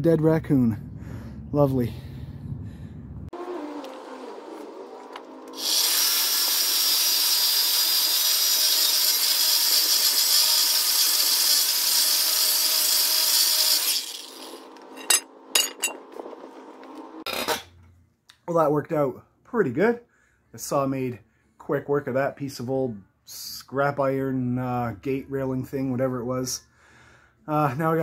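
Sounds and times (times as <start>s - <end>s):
disc saw grinding steel: 3.4s - 16.1s.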